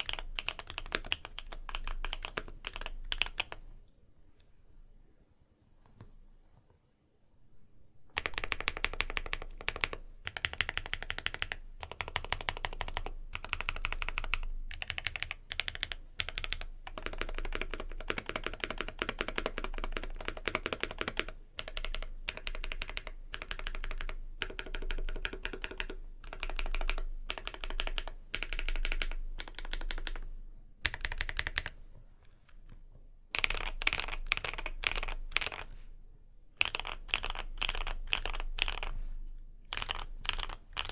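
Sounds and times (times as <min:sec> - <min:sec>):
mechanical keyboard typing: 0:00.0 - 0:03.6, 0:08.1 - 0:31.8, 0:33.3 - 0:35.7, 0:36.6 - 0:38.9, 0:39.7 - 0:40.9.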